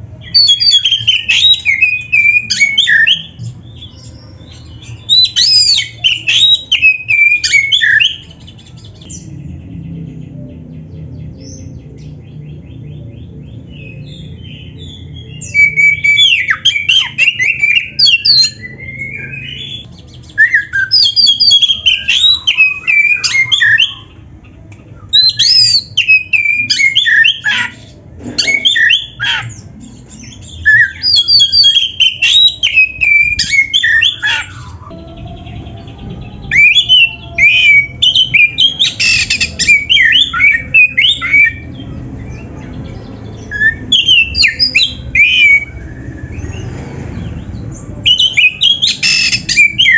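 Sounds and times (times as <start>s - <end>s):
bird singing whistles and chatters: 0.2s - 9.3s, 13.8s - 24.2s, 24.9s - 35.2s, 36.4s - 42.5s, 43.4s - 46.7s, 48.0s - 49.9s
faint low rumble: 34.8s - 38.4s.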